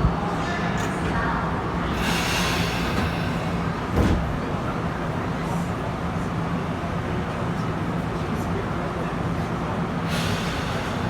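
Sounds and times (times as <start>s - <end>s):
train car hum: 0.0s - 11.0s
thump: 3.9s - 4.4s.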